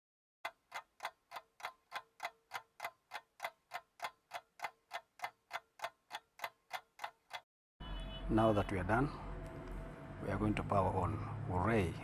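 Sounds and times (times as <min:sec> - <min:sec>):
clock ticking: 0:00.4 - 0:07.5.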